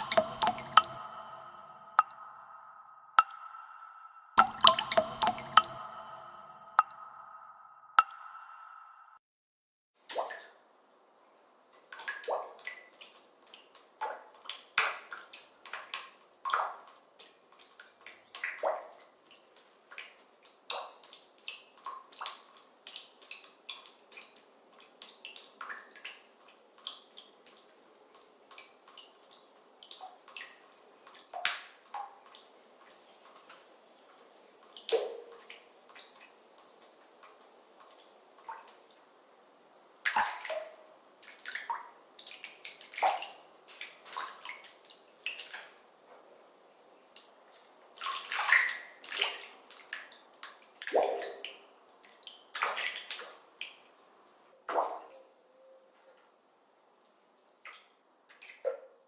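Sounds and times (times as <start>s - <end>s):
water drops plopping into water: 0.0s - 9.2s.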